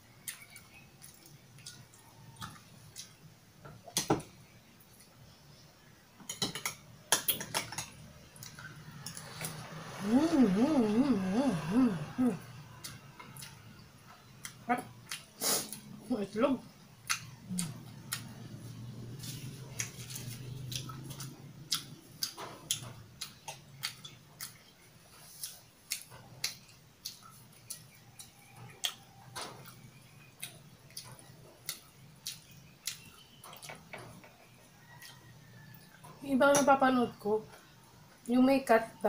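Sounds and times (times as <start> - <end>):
person chewing noodles: 0.2 - 3.2, 8.4 - 15.9, 17.0 - 33.7.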